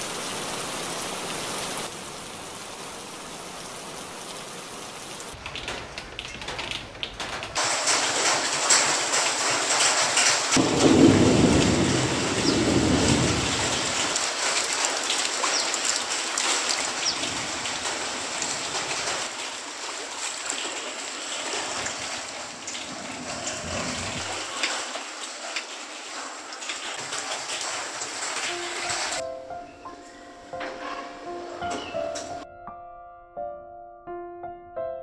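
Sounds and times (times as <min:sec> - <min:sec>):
steady rain falling: 0:00.0 - 0:29.2
thunder rumbling: 0:10.5 - 0:14.3, 0:21.6 - 0:24.7.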